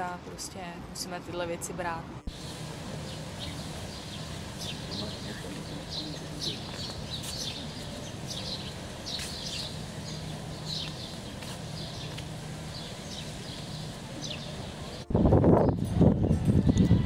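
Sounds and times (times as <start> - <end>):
small birds chirping: 2.3 - 15.9.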